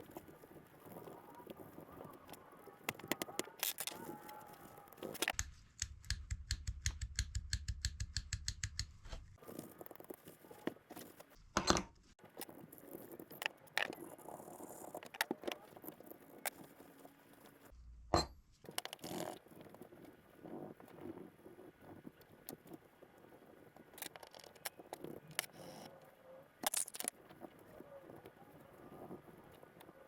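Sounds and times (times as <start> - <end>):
metal parts clicking and clinking: 26.6 - 27.1.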